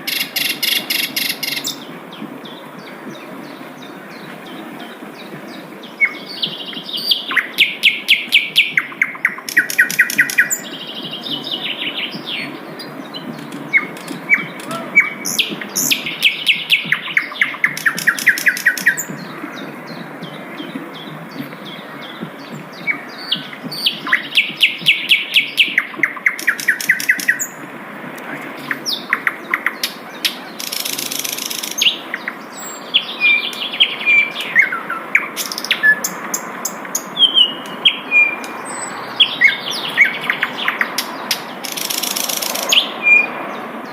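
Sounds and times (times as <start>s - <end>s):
low background noise: 0.0s - 43.9s.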